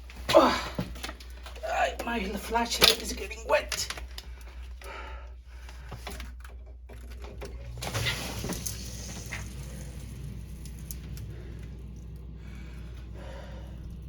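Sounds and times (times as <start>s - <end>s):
handling clicks and knocks: 0.8s - 4.9s
sump pump running: 4.2s - 14.0s.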